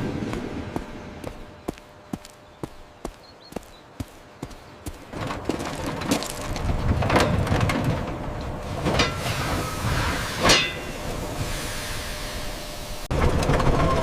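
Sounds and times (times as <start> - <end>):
train rumbling: 0.0 - 14.0
loud metallic clanks: 10.4 - 11.1.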